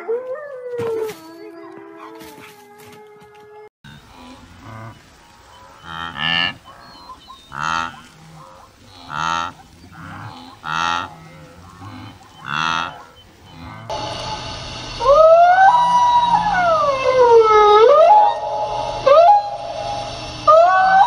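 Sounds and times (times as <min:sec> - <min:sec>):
animal calling: 0:03.9 - 0:13.9.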